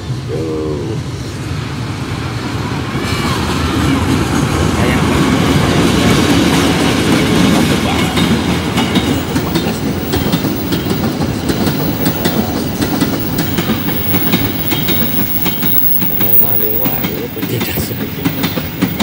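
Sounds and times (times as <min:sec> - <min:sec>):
locomotive engine rumble: 0:00.0 - 0:19.0
wagon wheels clattering over rails: 0:05.4 - 0:19.0.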